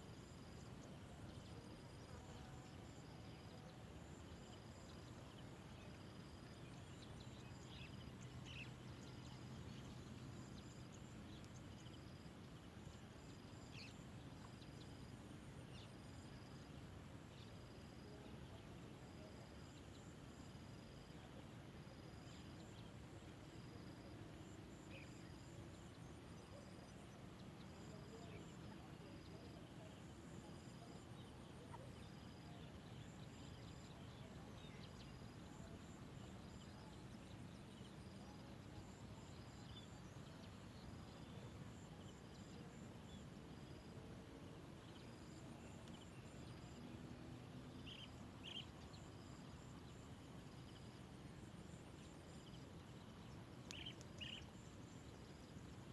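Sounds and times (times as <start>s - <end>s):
low background noise: 0.0s - 55.9s
insects chirping: 31.7s - 55.9s.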